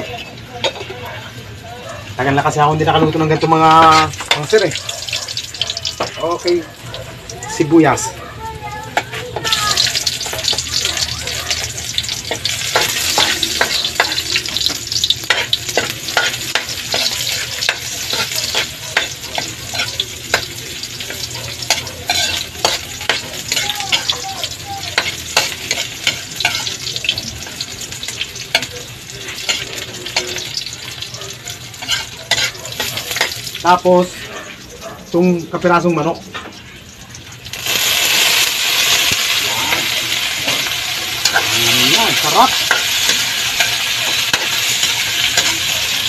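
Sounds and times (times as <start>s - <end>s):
onion sizzling in wok: 0.0s - 46.0s
metal spatula scraping pan: 11.5s - 24.2s, 31.7s - 33.5s, 38.3s - 46.0s.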